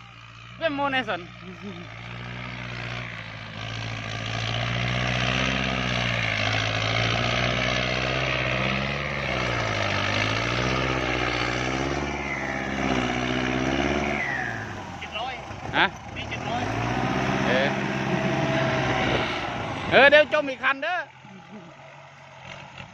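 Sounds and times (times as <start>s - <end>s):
tractor diesel engine lugging: 0.0s - 22.9s.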